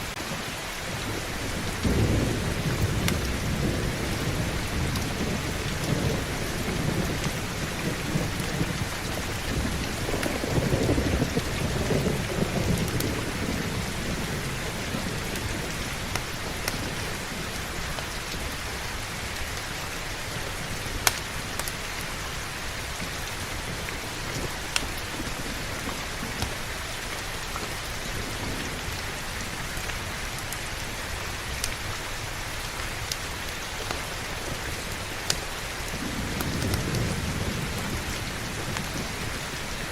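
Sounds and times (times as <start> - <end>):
heavy rain: 0.0 - 39.9
thunder rolling: 0.3 - 18.0, 34.2 - 39.9.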